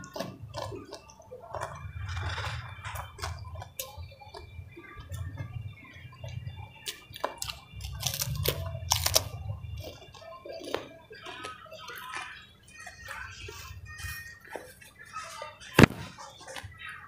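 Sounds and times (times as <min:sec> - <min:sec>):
crunchy bites: 0:06.9 - 0:10.0.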